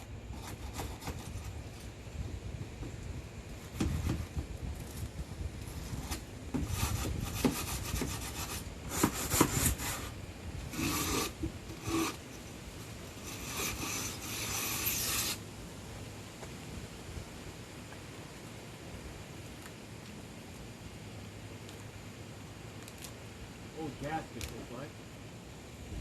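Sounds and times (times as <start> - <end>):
wire brush scrubbing: 5.7 - 12.4, 13.2 - 15.4.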